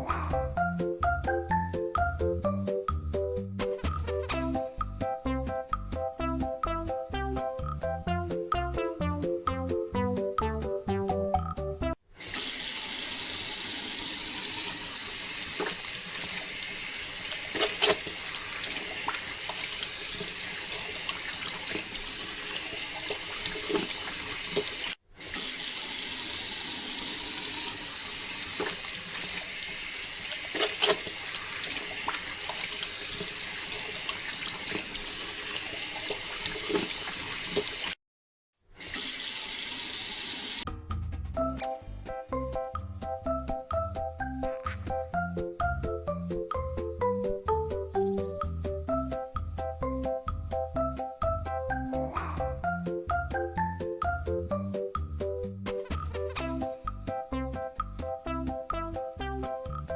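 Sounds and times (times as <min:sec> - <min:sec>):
water pouring: 0:12.2 - 0:38.0, 0:38.8 - 0:40.7.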